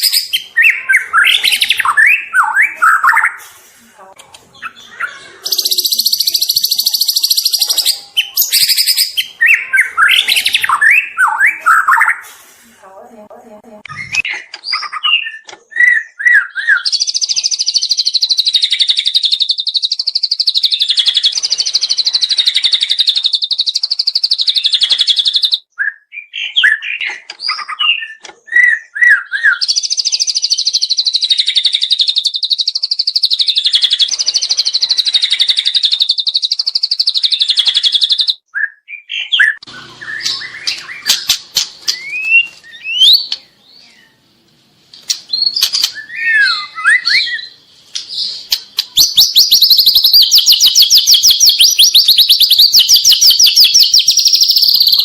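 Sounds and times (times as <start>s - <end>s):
songbird chirping and trilling: 0.0s - 55.0s
sharp clicks: 44.9s - 46.0s.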